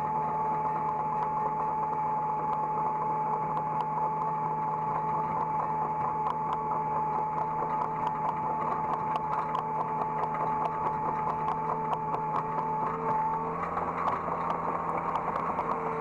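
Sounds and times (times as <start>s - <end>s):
constant high whine: 0.0s - 16.0s
excavator engine drone: 0.0s - 16.0s
light irregular ticks: 0.1s - 16.0s.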